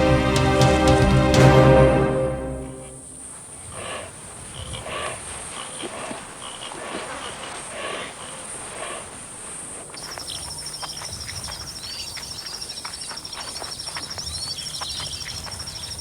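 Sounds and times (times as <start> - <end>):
bird chirps and clicks: 10.1 - 16.0.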